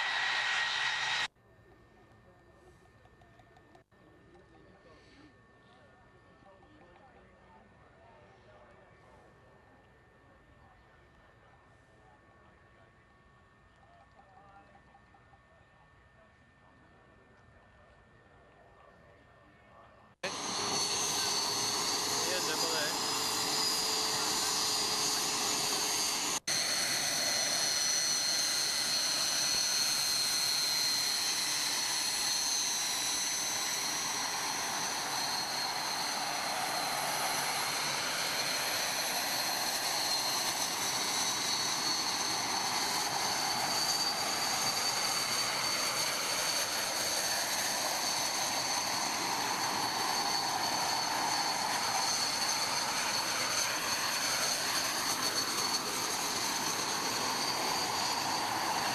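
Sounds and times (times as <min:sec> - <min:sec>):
jet engine roar with high whine: 0:00.0 - 0:01.3, 0:20.2 - 0:58.9.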